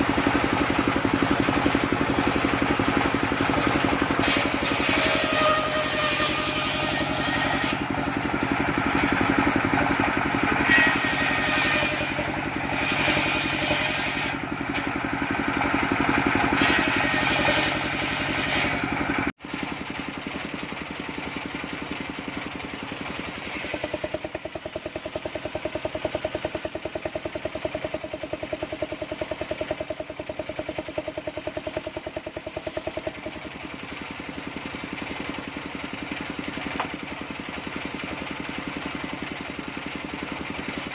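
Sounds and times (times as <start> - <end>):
saw cutting wood: 0.0 - 20.5, 22.7 - 34.2, 40.5 - 40.9
circular saw engine running: 0.0 - 40.9.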